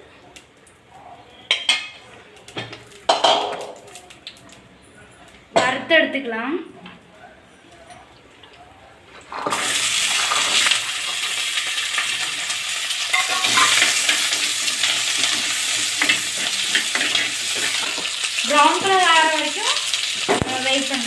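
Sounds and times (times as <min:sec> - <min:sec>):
food sizzling in hot oil: 0:09.4 - 0:21.0.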